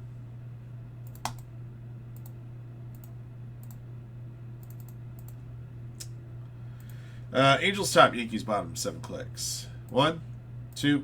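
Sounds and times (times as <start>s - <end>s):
steady low hum: 0.0s - 11.0s
computer mouse clicks: 1.0s - 1.5s, 2.2s - 3.8s, 4.6s - 5.4s.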